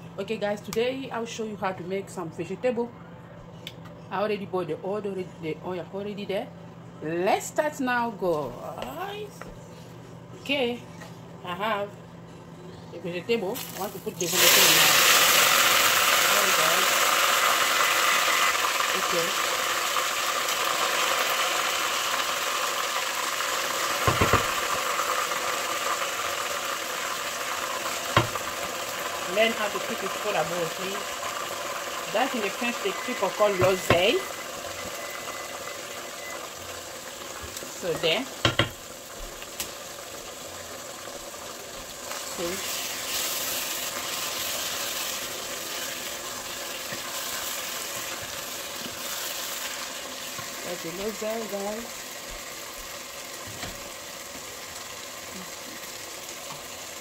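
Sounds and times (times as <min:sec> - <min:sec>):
leaves sizzling in hot oil: 0:13.5 - 0:57.0.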